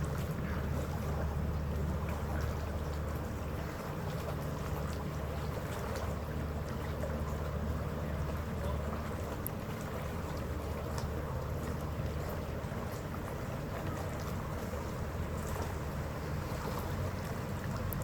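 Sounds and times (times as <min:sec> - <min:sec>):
ferry engines droning: 0:00.0 - 0:18.0
water rushing along hull: 0:00.0 - 0:18.0.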